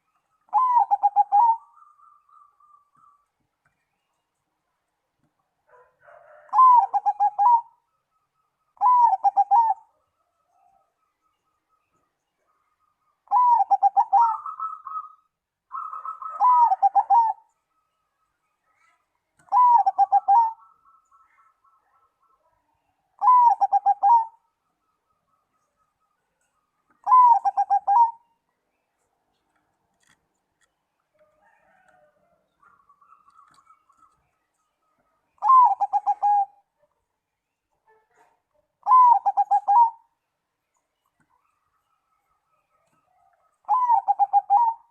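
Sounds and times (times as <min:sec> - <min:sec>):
dove cooing: 0:00.5 - 0:03.2, 0:05.7 - 0:07.8, 0:08.8 - 0:09.9, 0:13.3 - 0:17.5, 0:19.4 - 0:21.0, 0:23.2 - 0:24.4, 0:27.0 - 0:28.3, 0:35.4 - 0:36.7, 0:38.8 - 0:40.1, 0:43.6 - 0:44.9.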